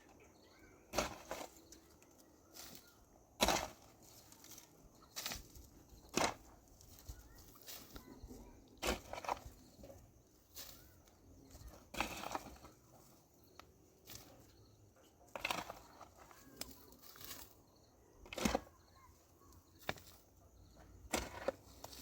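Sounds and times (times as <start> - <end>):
sharp knocks and scrapes: 0.9 - 10.9, 11.5 - 13.1, 15.3 - 17.6, 18.2 - 19.1, 19.8 - 22.0.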